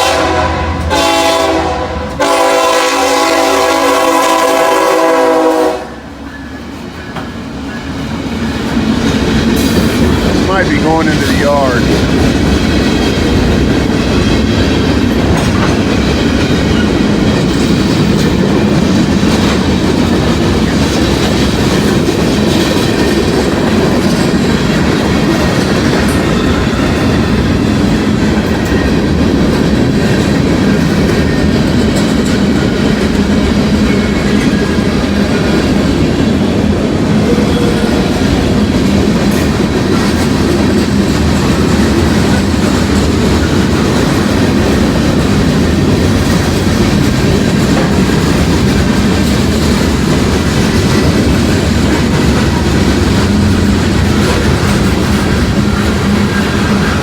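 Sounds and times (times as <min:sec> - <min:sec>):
freight train wheels rumbling: 0:00.0 - 0:57.0
clickety-clack over rail joints: 0:06.3 - 0:57.0.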